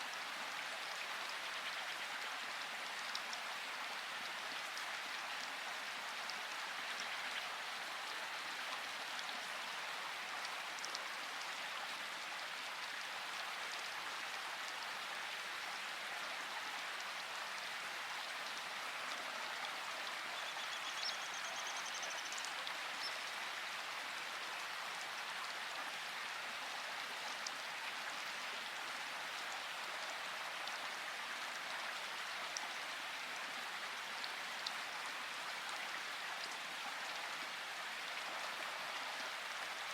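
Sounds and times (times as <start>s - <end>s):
steady rain falling: 0.0s - 39.9s
faint high chirp: 20.4s - 23.2s.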